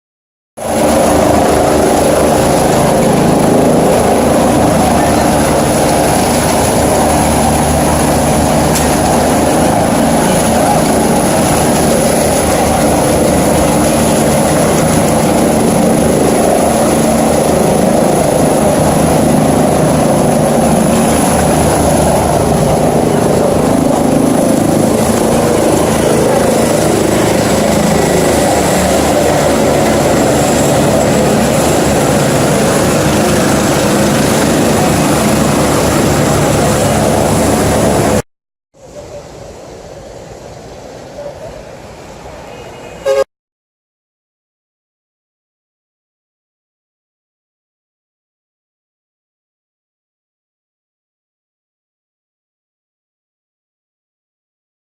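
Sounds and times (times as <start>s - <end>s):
helicopter rotor noise: 0.6s - 38.2s.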